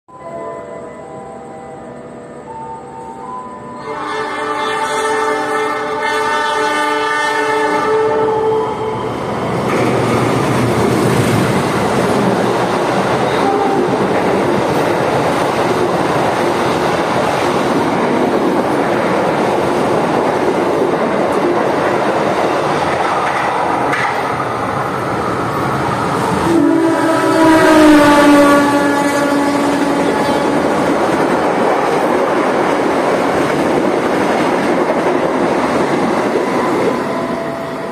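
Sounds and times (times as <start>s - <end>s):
train rumbling and clattering past: 0.7s - 37.9s
train horn: 3.7s - 9.1s, 13.2s - 14.2s, 26.3s - 31.1s, 36.4s - 37.9s.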